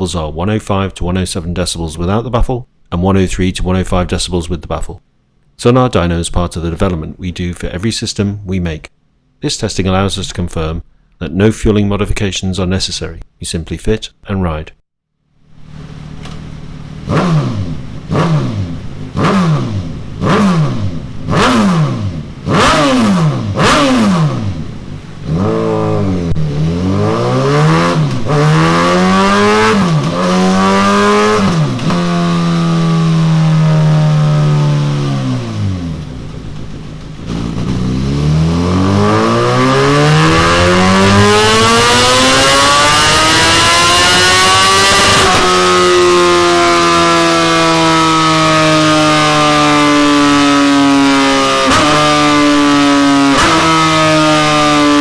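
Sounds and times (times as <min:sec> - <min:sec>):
motorcycle throttle blips: 0:15.5 - 0:55.0
motorcycle engine revving: 0:15.6 - 0:55.0.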